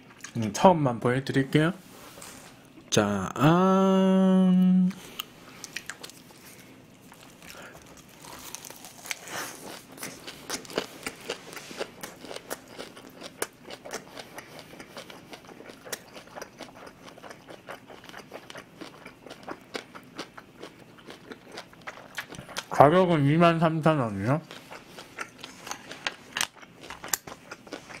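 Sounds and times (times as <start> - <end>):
person chewing crunchy food: 5.0 - 22.8, 24.4 - 28.0.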